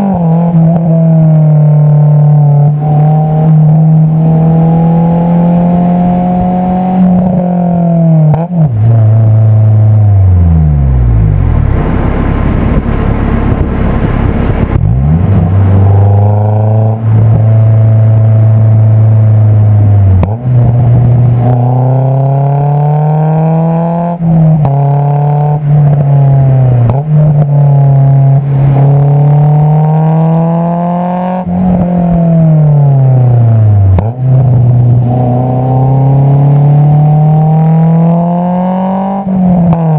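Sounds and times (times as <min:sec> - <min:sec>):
car exhaust revving through gears: 0:00.0 - 0:39.9
wind noise: 0:11.0 - 0:18.7.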